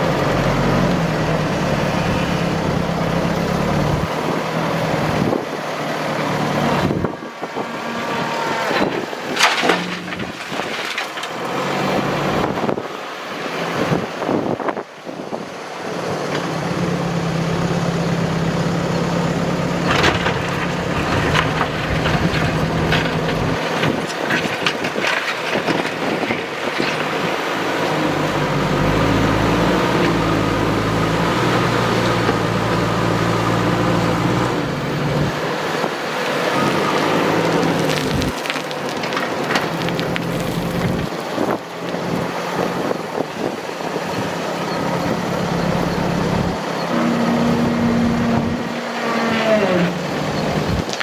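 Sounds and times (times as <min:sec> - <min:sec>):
heavy machinery diesel engine: 0:00.0 - 0:51.0
knocks and clatter: 0:08.7 - 0:11.6, 0:19.7 - 0:27.2.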